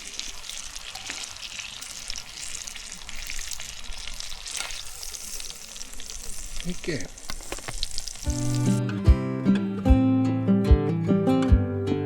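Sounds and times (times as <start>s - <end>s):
vegetables sizzling in a hot pan: 0.0s - 8.8s.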